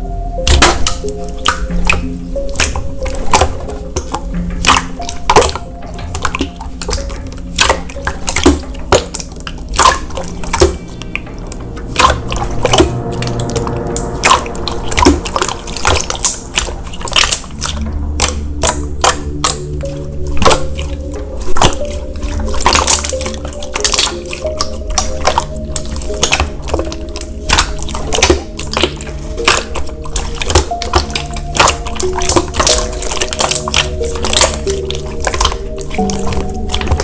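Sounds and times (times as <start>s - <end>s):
soft background music: 0.0s - 37.0s
slime squeezed with wet clicks: 0.4s - 11.3s, 11.9s - 37.0s.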